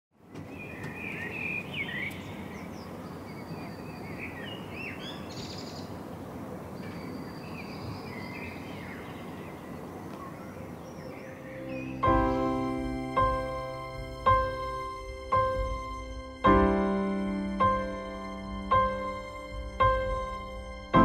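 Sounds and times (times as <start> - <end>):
outdoor ambience hiss: 0.2 - 21.0
birds chirping and calling: 0.3 - 14.8.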